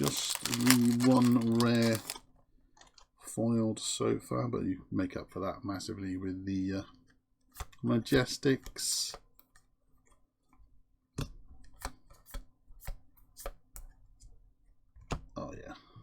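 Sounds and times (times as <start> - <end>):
cards clicking and snapping: 0.0 - 2.2.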